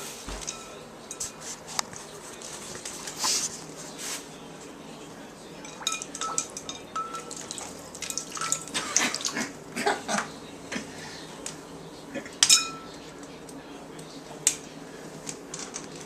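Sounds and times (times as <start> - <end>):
ice clinking against bowl: 5.6 - 8.9.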